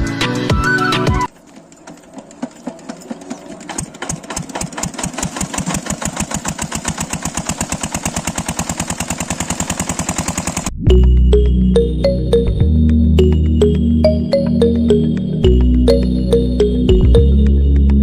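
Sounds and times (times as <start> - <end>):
engine chugging with knocking beat: 1.2 - 11.2.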